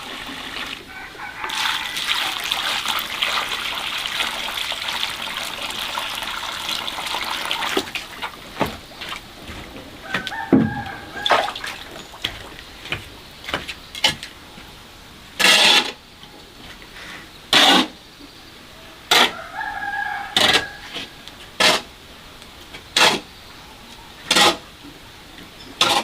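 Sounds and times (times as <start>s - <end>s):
water pouring: 0.0s - 9.2s, 11.0s - 12.7s.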